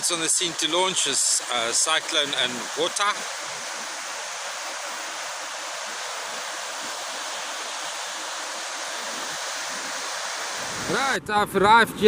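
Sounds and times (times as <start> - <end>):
surf and waves washing in: 0.0 - 11.2.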